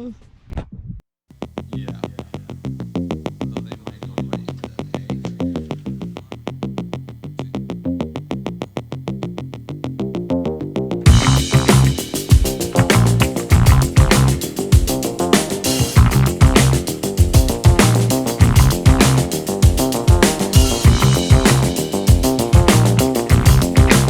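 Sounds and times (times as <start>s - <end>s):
electronic synthesizer music: 11.1s - 24.0s.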